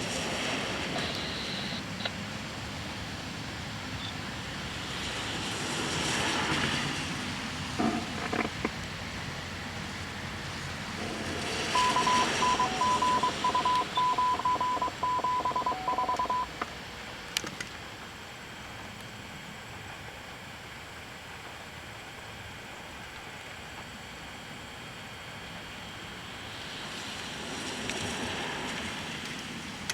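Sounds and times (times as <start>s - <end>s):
radio scanner beeps: 0.9s - 2.1s, 11.7s - 16.6s
lower electronic tone: 11.7s - 16.5s.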